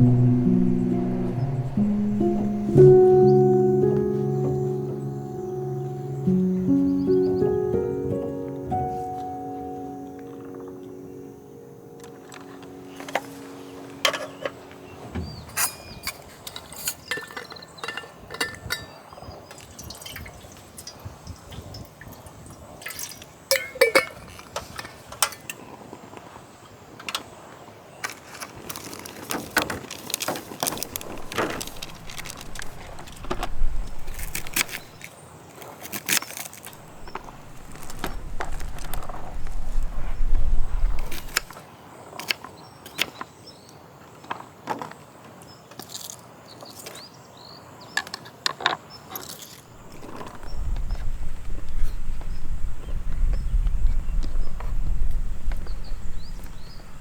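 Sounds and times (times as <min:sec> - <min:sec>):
low rumble: 0:00.0 - 0:07.1, 0:30.9 - 0:35.0, 0:36.8 - 0:41.5, 0:49.8 - 0:57.0
glass and metal ware clinking: 0:15.5 - 0:19.1, 0:23.0 - 0:24.4.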